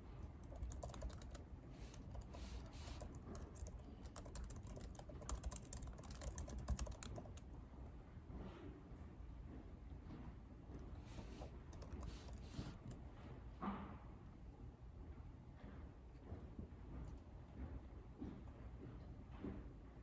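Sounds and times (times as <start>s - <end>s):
low room hum: 0.0s - 20.0s
keyboard typing: 0.4s - 7.5s, 11.2s - 13.0s.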